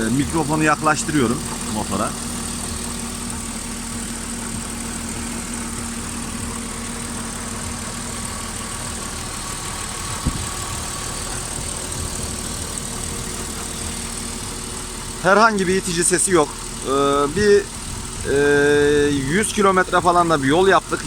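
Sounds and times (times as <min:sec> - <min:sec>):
car engine idling: 0:00.0 - 0:21.0
short engine knock: 0:07.7 - 0:14.8.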